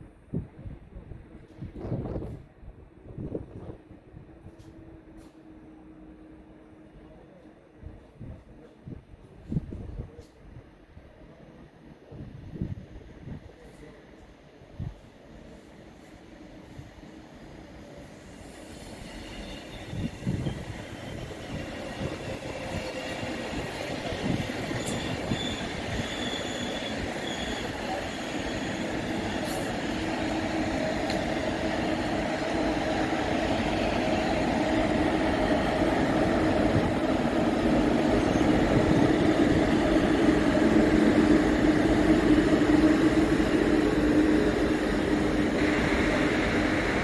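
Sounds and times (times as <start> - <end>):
train wheels rushing on rail: 0.0 - 47.0
high-pitched wheel squeals: 19.0 - 21.3, 24.7 - 29.0.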